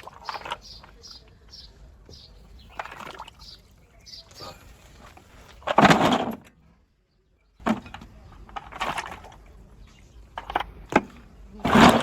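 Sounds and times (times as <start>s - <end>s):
hard objects knocking and clattering: 5.6s - 6.5s, 7.6s - 9.5s, 10.3s - 12.0s.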